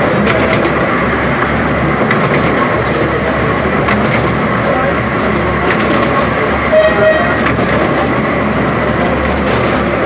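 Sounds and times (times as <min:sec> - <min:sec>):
train wheels rumbling on track: 0:00.0 - 0:10.0
train horn toot: 0:06.7 - 0:07.5.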